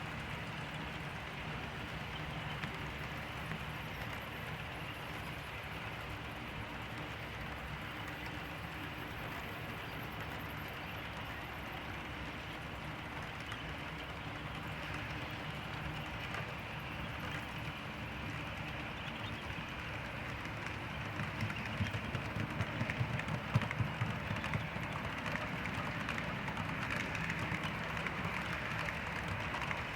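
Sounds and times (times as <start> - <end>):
model train rumbling: 0.0 - 29.9
wheels clicking over rail joints: 18.5 - 29.9.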